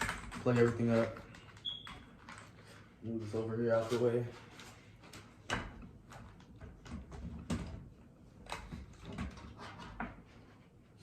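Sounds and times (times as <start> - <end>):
rustling packaging: 0.0 - 5.4.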